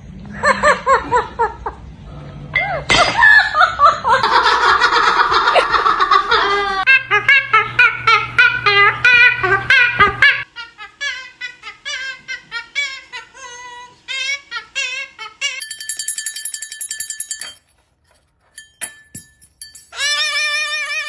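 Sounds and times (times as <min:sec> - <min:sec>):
parrot imitating laughter: 0:02.6 - 0:15.6, 0:19.9 - 0:21.0.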